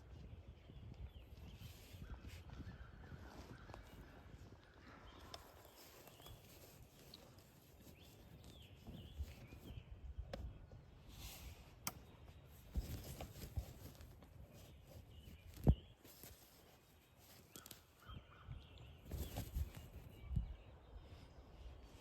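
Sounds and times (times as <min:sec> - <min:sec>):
faint bird chirps: 0:00.0 - 0:22.0
soft thumps and rustles: 0:12.6 - 0:17.4, 0:19.0 - 0:20.0.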